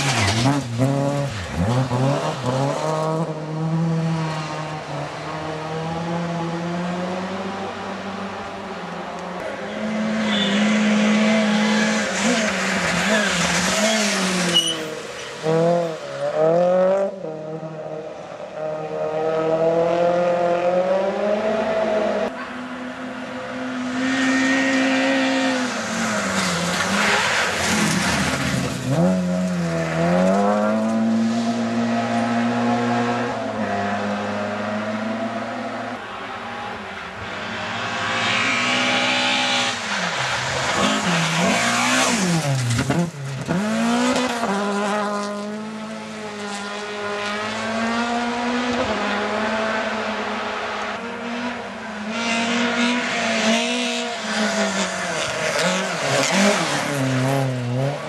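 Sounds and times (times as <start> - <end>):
rally car engine revving: 0.0 - 8.5, 9.2 - 36.0, 36.9 - 58.0.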